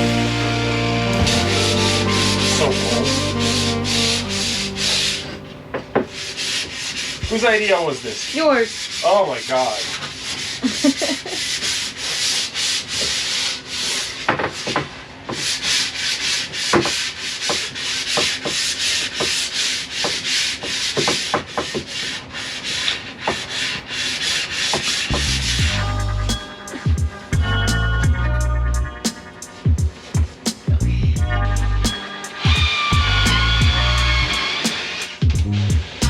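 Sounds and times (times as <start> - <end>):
hand sanding wood: 0.0 - 5.4, 6.0 - 26.9
music with low beat: 0.0 - 6.4, 25.2 - 34.1, 35.2 - 36.0.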